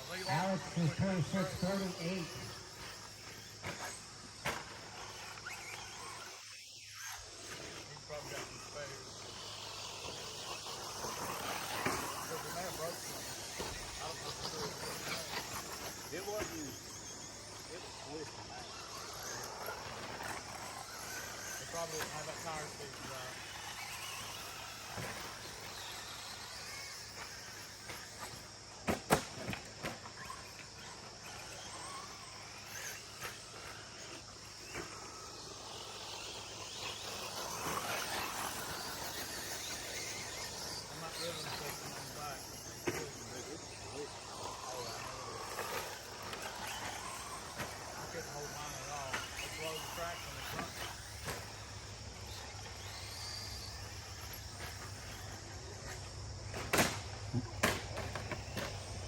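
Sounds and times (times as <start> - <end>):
insects chirring: 0.0 - 59.0
rc truck motors whining: 0.0 - 59.0.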